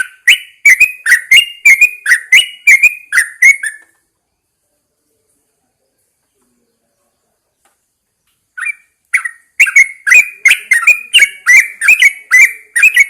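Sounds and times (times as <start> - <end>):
bird calling sharp chirps: 0.0 - 4.0, 8.4 - 13.0.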